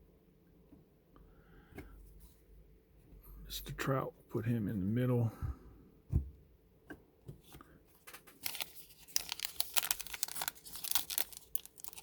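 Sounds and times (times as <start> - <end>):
plastic wrapper crinkling and tearing: 8.1 - 12.0.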